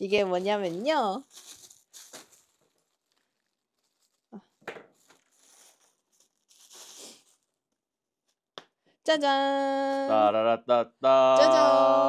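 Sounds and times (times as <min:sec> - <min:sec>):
plastic packaging crinkling: 0:00.0 - 0:07.7
plastic packaging tearing: 0:00.3 - 0:07.6.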